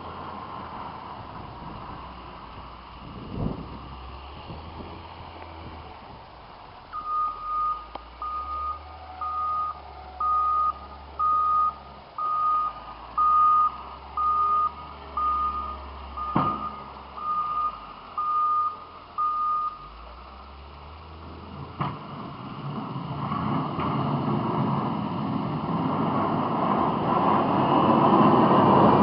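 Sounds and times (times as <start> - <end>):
loader engine rumble: 0.0 - 29.0
reversing alarm beeping: 6.9 - 20.0.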